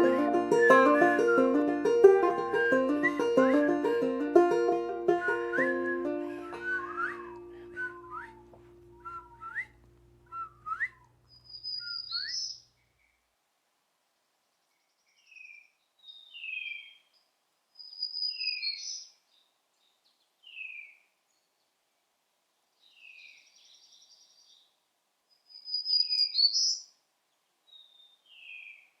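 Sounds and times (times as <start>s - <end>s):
birds whistling and trilling: 11.3s - 12.6s, 17.8s - 19.1s, 25.5s - 26.8s.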